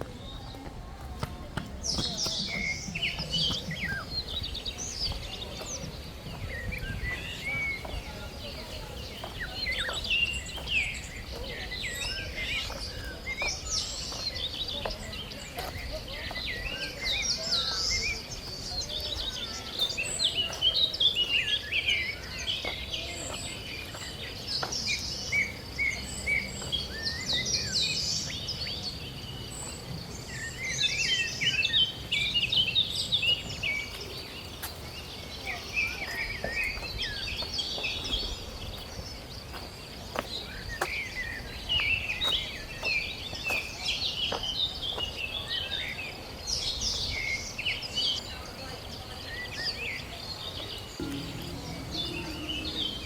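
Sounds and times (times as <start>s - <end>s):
birds chirping and chattering: 0.0s - 27.7s.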